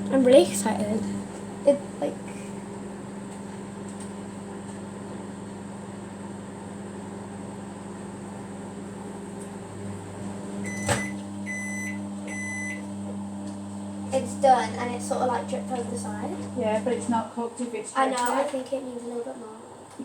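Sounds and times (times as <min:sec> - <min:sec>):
microwave oven humming: 0:00.0 - 0:20.0
microwave beep: 0:09.7 - 0:16.6.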